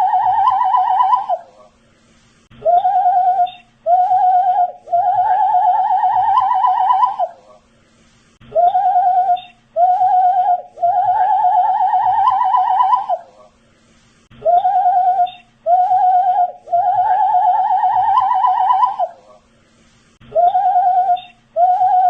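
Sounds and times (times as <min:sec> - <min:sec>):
man whistling with vibrato: 0:14.4 - 0:19.1, 0:20.3 - 0:22.0.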